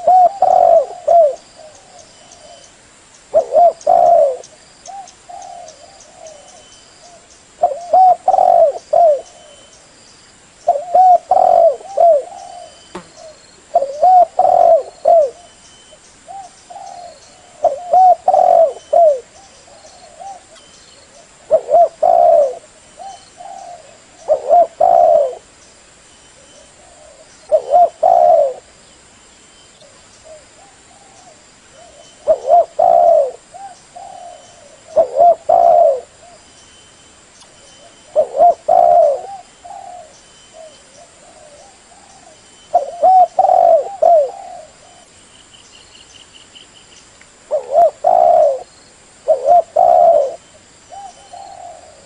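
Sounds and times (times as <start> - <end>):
dove cooing: 0.0 - 2.7, 3.3 - 9.7, 10.6 - 15.6, 16.3 - 25.5, 26.4 - 28.8, 29.8 - 36.5, 37.7 - 45.1, 47.5 - 52.0.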